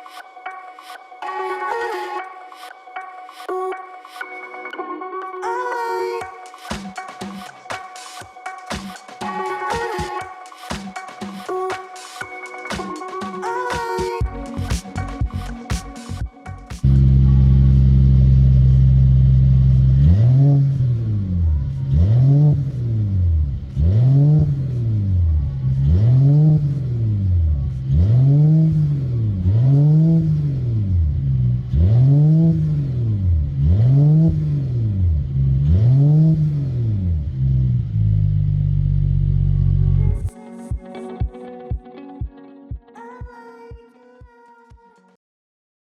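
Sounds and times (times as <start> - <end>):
engine revving blips: 16.7 - 40.2
car engine idling: 16.8 - 27.9.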